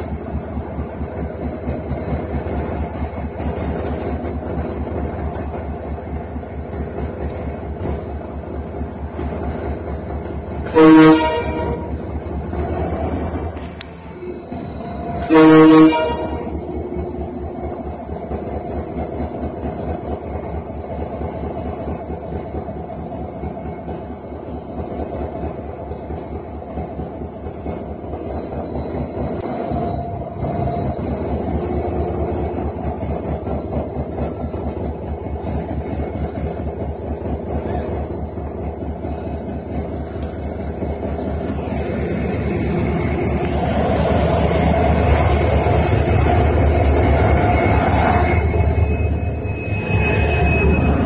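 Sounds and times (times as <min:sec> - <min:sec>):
locomotive horn blast: 0:10.7 - 0:11.9, 0:15.2 - 0:16.5.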